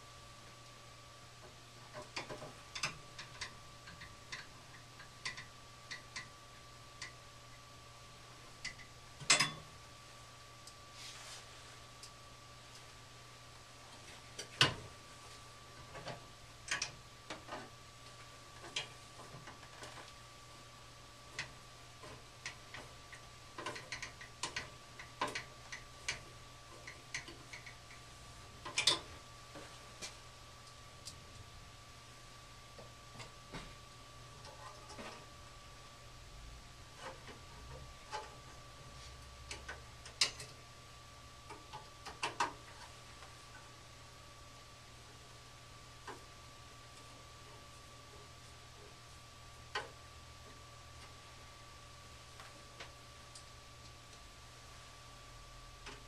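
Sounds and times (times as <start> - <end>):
faint steady hum: 0.0 - 56.0
tools clicking and tapping: 1.9 - 6.3, 8.6 - 9.7, 21.4 - 28.0, 28.6 - 30.2, 39.5 - 40.6.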